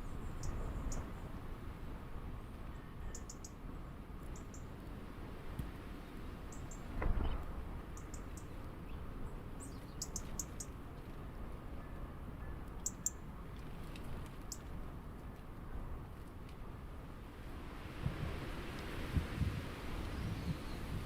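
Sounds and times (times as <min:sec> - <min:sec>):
small birds chirping: 0:03.0 - 0:03.6, 0:04.2 - 0:04.7, 0:06.5 - 0:09.0, 0:09.6 - 0:10.8, 0:12.8 - 0:13.2.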